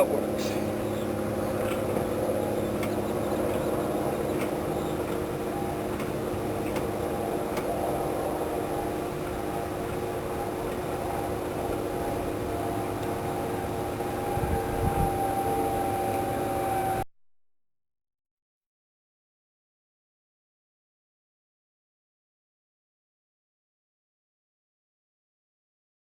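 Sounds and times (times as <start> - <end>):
motor humming: 0.0 - 17.1.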